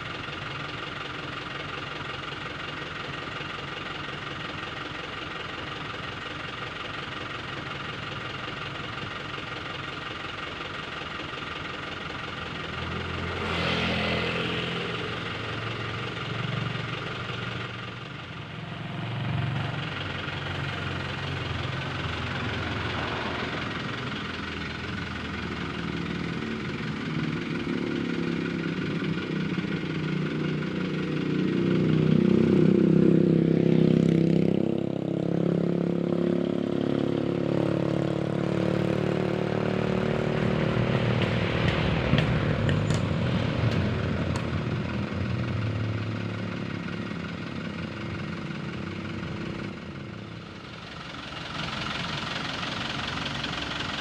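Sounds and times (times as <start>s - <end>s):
truck engines passing: 0.0s - 54.0s.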